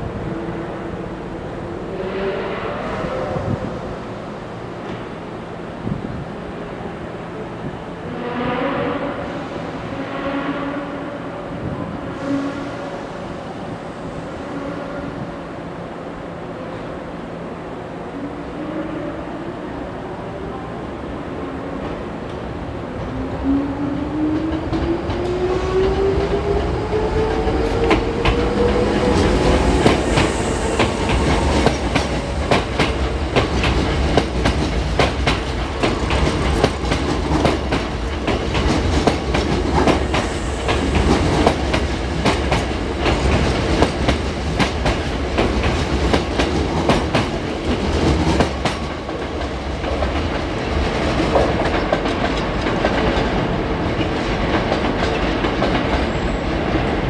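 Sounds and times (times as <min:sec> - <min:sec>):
train rumble: 0:20.5 - 0:57.0.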